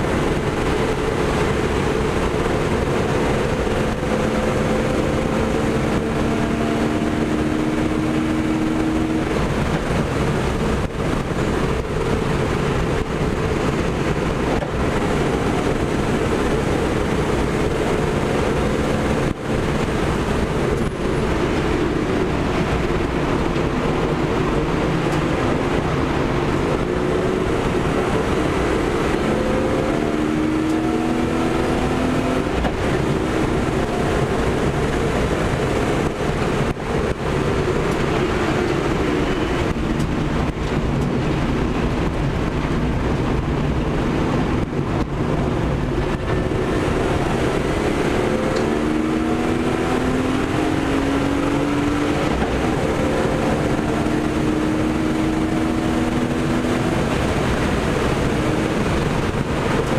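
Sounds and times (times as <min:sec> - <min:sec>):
car engine accelerating: 0:00.0 - 0:59.9
road and wind noise: 0:00.0 - 0:59.9.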